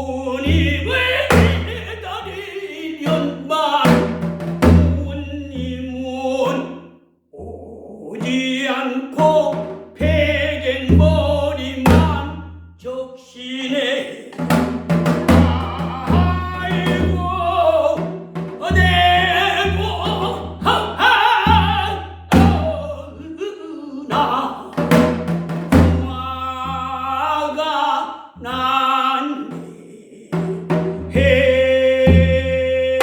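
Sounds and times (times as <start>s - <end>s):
drum beats: 0.1s - 1.9s, 3.0s - 5.1s, 14.4s - 23.0s, 24.1s - 27.1s, 30.3s - 33.0s.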